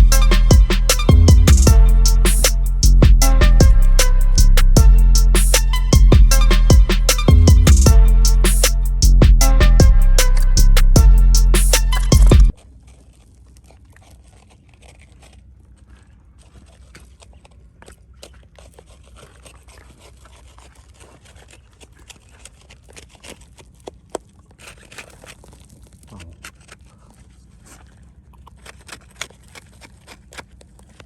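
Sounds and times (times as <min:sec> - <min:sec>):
background music: 0:00.0 - 0:12.5
faint scrapes and clicks: 0:12.6 - 0:31.0.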